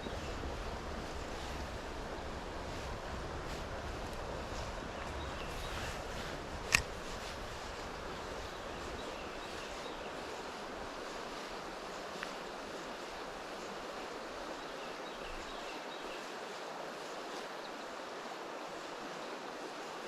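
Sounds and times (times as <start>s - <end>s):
wind rumble on microphone: 0.0s - 16.2s
river water rushing: 0.0s - 20.0s.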